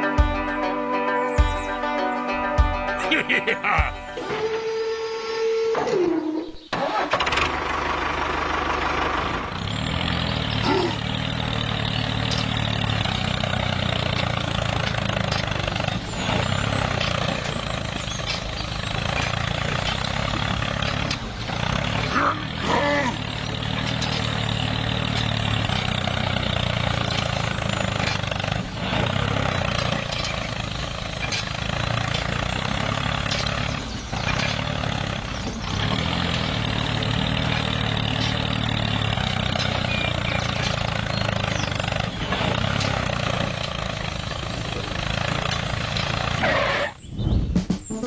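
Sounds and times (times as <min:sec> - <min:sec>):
small motor humming: 0:09.4 - 0:46.4.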